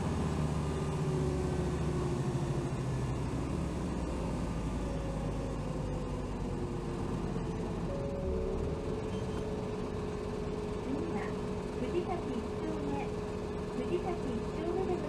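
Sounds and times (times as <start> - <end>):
bus engine: 0.0 - 15.0
road noise: 0.0 - 15.0
faint steady whine: 7.2 - 15.0.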